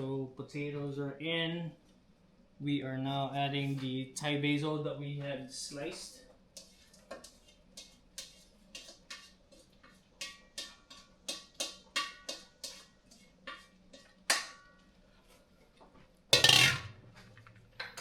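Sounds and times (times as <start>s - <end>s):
metal utensil tapping a pot: 10.2s - 12.8s, 13.5s - 14.7s.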